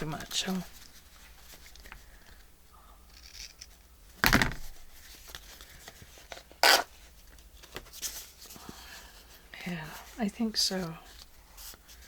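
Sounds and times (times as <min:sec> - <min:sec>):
paper rustle: 0:04.6 - 0:09.4.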